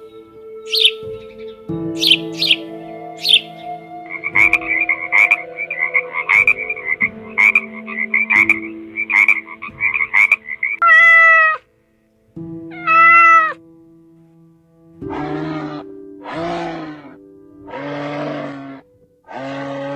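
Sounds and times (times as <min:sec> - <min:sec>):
soft background music: 0:00.0 - 0:19.9
frog croaking: 0:00.7 - 0:01.0, 0:02.0 - 0:11.6
cat meowing: 0:10.8 - 0:11.6, 0:12.7 - 0:13.6.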